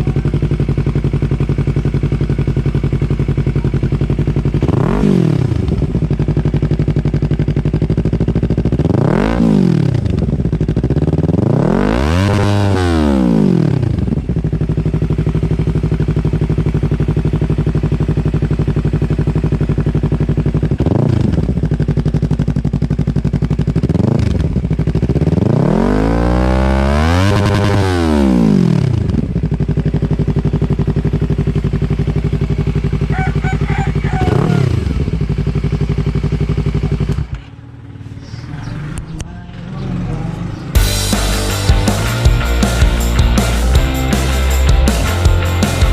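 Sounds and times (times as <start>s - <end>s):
motorcycle engine idling and revving: 0.0s - 45.9s.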